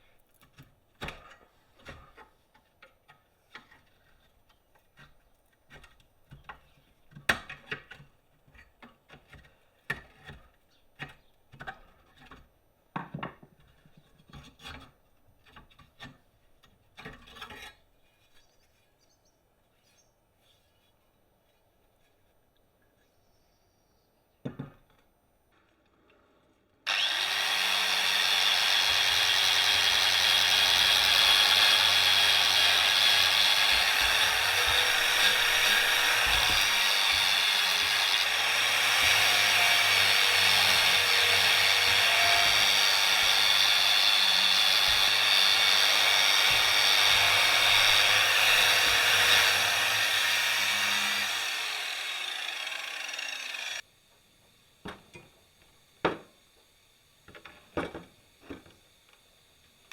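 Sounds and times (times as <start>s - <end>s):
power tool machining steel: 26.9s - 53.8s.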